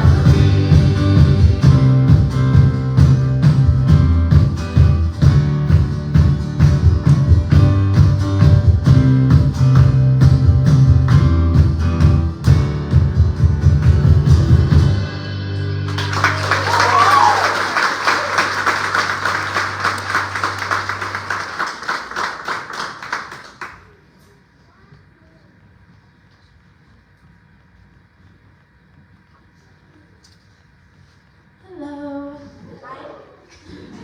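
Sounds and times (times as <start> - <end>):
band playing driving beat: 0.0 - 15.1
audience applause: 15.9 - 24.0.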